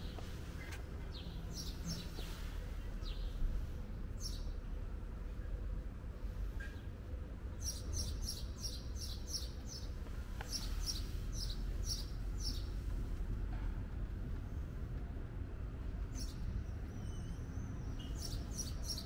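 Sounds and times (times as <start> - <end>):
steady low rumble: 0.0 - 7.6, 9.6 - 17.0.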